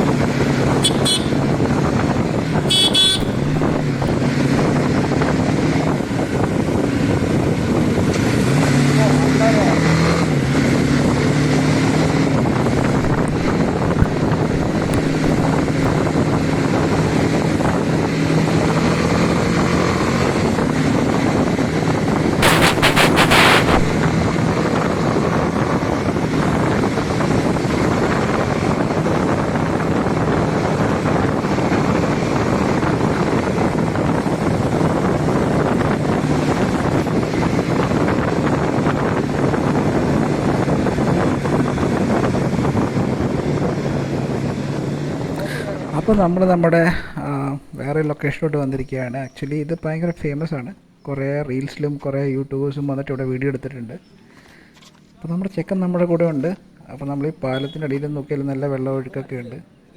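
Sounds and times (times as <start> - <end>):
vehicle engine running: 0.0 - 6.4, 12.4 - 17.0
wind buffeting microphone: 0.0 - 8.6, 12.1 - 49.0
loud crackle: 1.0 - 5.0, 12.8 - 16.5, 22.4 - 24.2.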